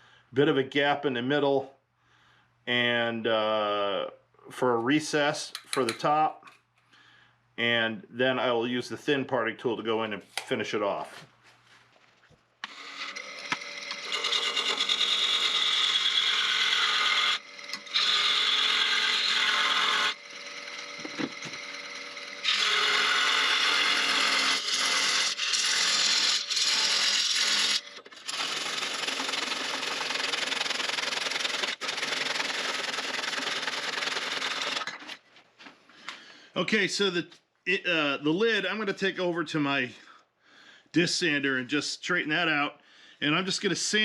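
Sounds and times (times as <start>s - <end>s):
lathe tool scraping wood: 12.6s - 35.2s.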